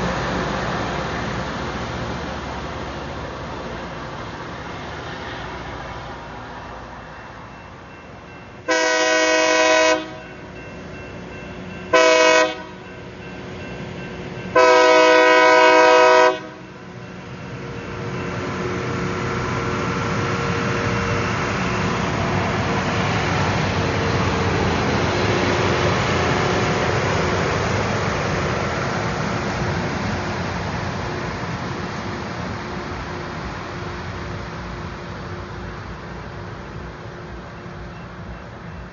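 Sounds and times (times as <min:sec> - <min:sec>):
train rumbling past: 0:00.0 - 0:38.9
train horn blasts: 0:08.6 - 0:10.5, 0:11.9 - 0:12.9, 0:14.5 - 0:16.7.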